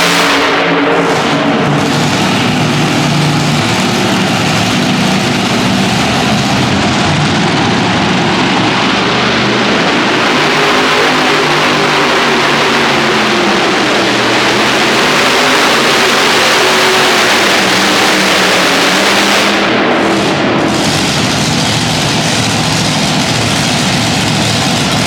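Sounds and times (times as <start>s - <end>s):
tractor engine running hard: 0.0s - 25.0s.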